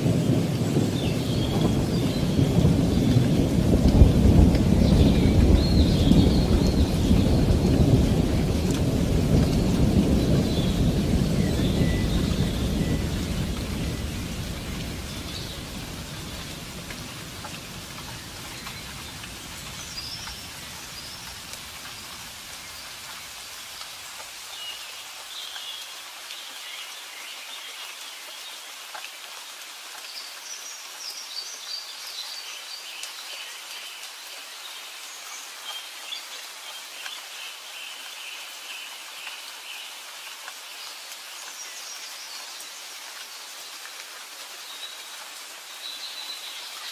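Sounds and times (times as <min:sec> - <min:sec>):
low roll of thunder: 0:00.0 - 0:22.4
steady rain falling: 0:00.0 - 0:46.9
birds chirping: 0:00.2 - 0:23.3.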